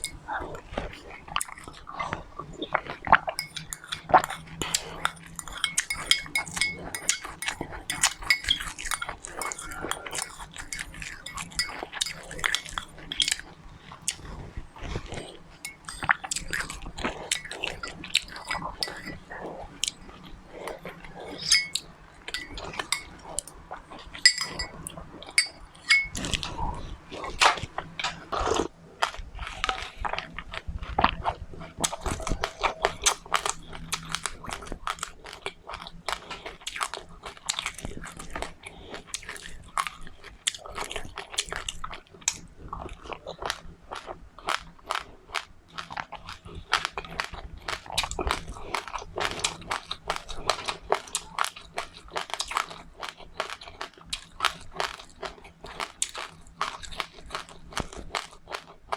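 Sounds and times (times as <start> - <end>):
person chewing crunchy seeds: 0.0 - 58.9
light clinks: 24.2 - 24.7, 25.4 - 26.2.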